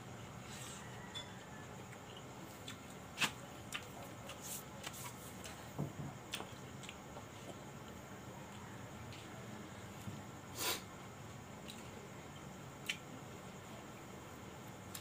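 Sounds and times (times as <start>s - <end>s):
person chewing corn: 1.8s - 5.6s, 6.2s - 9.3s.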